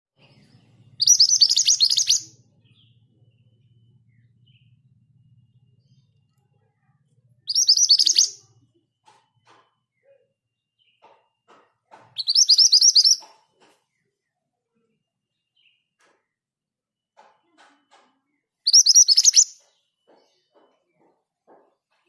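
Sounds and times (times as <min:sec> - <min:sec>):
bird trilling: 0:01.0 - 0:02.4, 0:07.5 - 0:08.5, 0:12.2 - 0:13.2, 0:18.7 - 0:19.6.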